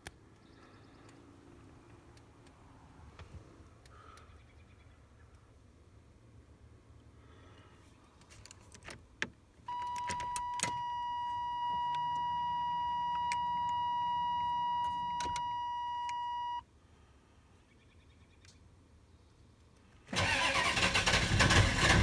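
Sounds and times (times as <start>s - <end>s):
keys clicking in ignition: 9.8s - 10.8s.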